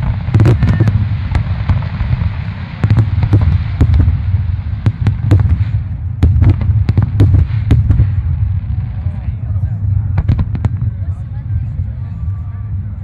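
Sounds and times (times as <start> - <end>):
fireworks sharp cracks: 0.0 - 8.9, 10.1 - 11.1
fireworks booming rumble: 0.0 - 13.0.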